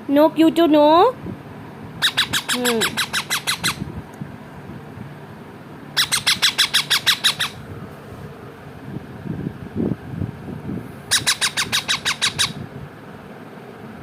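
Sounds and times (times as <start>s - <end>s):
parrot squawking: 2.0s - 3.8s, 5.9s - 7.6s, 11.1s - 12.6s.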